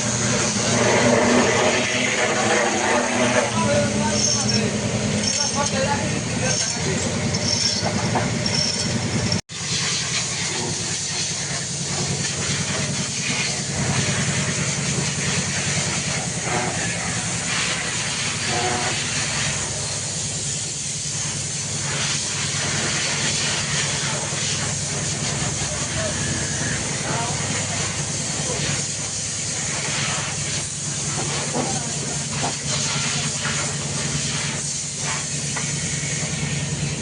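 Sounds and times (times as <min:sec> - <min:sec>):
hiss of pressurised spray: 0:09.5 - 0:37.0.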